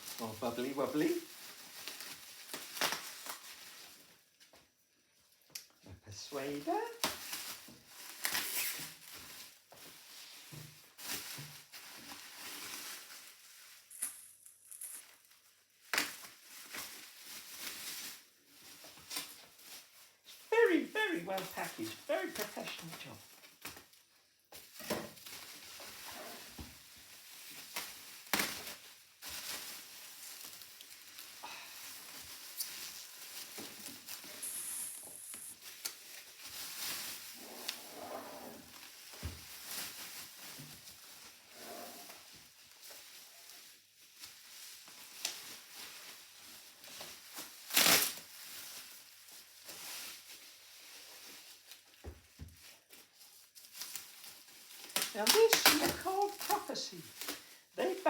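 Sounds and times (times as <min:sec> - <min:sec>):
packing material rustling and crinkling: 0:00.0 - 0:05.4, 0:06.3 - 0:58.0.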